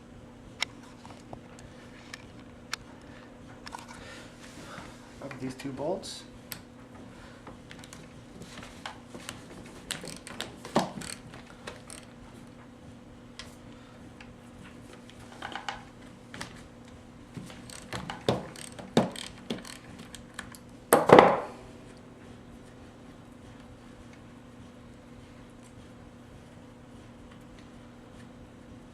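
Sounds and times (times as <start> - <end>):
wrench ratcheting: 9.9 - 12.1, 17.6 - 20.6.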